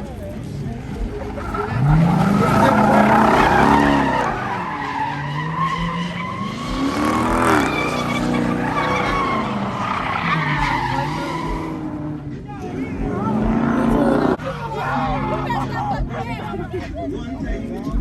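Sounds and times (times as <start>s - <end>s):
tyres squealing: 0.0s - 17.8s
car engine revving: 0.0s - 18.0s.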